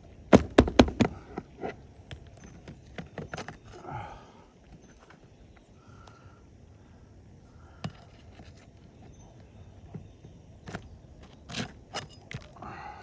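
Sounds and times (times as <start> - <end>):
steady low background noise: 0.0 - 13.0
knocks and scrapes on shingle roof: 0.3 - 3.8, 9.8 - 12.6.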